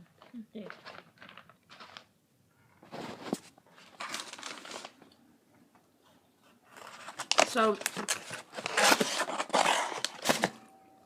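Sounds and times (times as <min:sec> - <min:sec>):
plastic packaging crinkling: 0:00.0 - 0:02.2, 0:02.9 - 0:05.2, 0:06.7 - 0:10.6.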